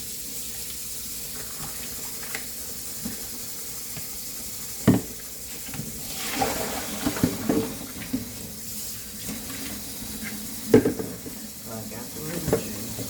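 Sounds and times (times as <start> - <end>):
kitchen tap running into sink: 0.0 - 13.0.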